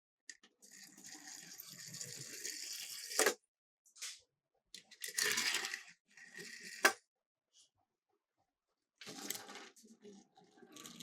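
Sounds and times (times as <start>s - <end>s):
toy cars rattling down plastic: 5.0s - 7.0s
sharp toy car clack: 6.8s - 7.0s.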